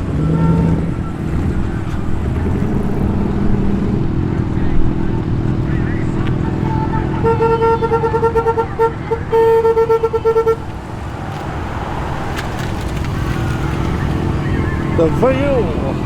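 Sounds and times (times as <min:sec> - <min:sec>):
low rumble of car engines: 0:00.0 - 0:16.0
car horn toots: 0:06.8 - 0:11.5.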